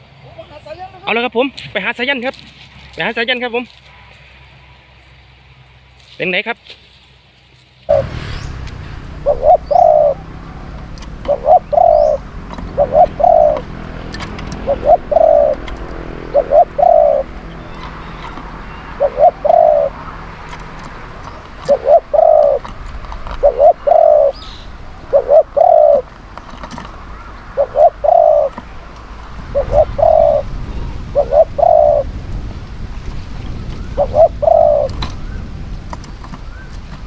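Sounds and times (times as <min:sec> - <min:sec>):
low background rumble: 0:07.9 - 0:37.0
dove cooing: 0:09.2 - 0:20.5, 0:21.2 - 0:26.1, 0:26.8 - 0:28.7, 0:29.5 - 0:32.1, 0:33.5 - 0:35.4.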